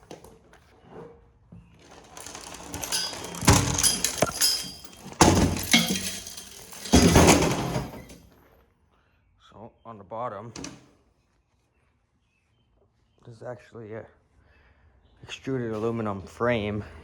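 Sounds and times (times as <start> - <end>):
metal parts clanking: 1.8 - 8.2.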